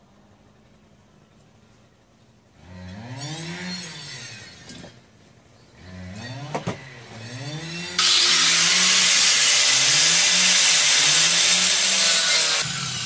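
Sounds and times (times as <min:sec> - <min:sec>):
grinder milling rice: 0:08.0 - 0:13.0.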